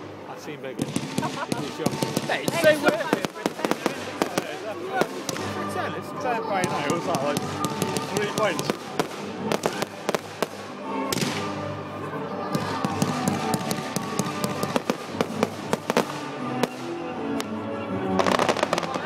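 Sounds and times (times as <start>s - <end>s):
music: 0.0s - 19.0s
fireworks bangs and crackles: 0.7s - 5.8s, 6.6s - 11.7s, 12.5s - 19.0s.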